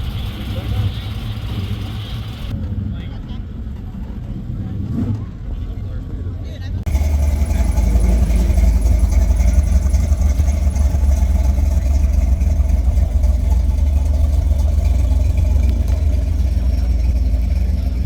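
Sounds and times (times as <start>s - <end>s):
car engine running: 0.0s - 2.5s, 6.9s - 18.0s.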